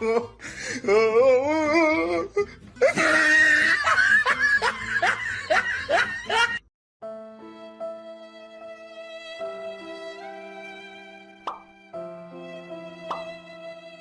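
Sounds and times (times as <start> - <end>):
person laughing: 2.8 - 6.6
held string music notes: 7.3 - 14.0.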